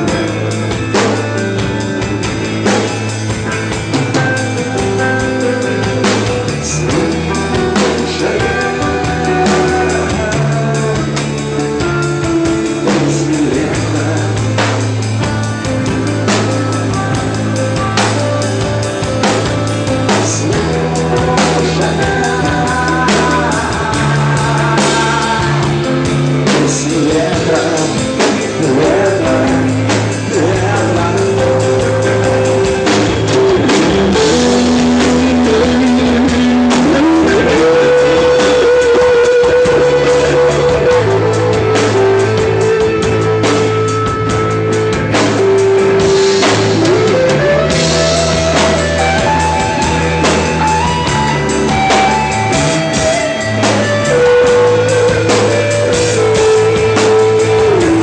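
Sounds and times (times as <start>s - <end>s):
rock band playing: 0.0s - 58.0s.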